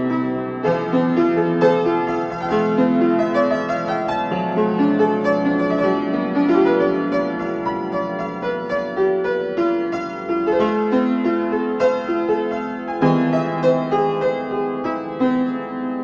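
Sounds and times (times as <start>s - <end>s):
piano playing chords and melody: 0.0s - 16.0s.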